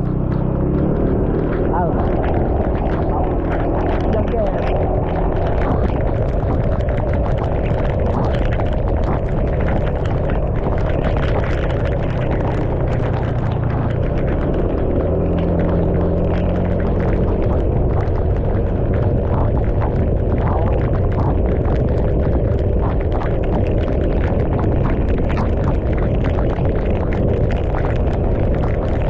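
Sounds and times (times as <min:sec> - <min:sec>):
motorcycle engine: 0:00.0 - 0:29.0
raindrops spattering: 0:00.0 - 0:29.0
wind rumbling on microphone: 0:00.0 - 0:29.0.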